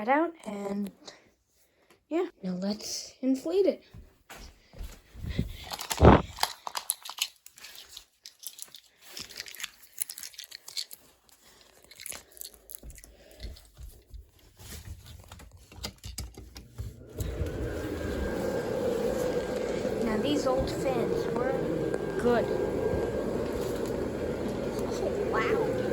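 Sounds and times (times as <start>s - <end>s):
nylon fabric crinkling and rustling: 5.3s - 15.8s
blower fan humming: 14.9s - 25.9s.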